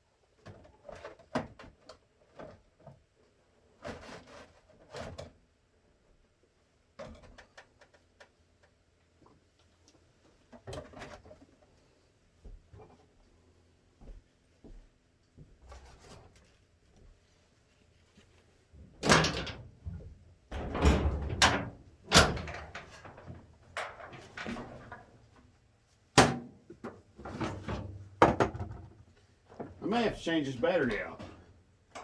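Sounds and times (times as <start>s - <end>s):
knocks and clunks of handling: 18.8s - 25.4s, 26.2s - 29.8s.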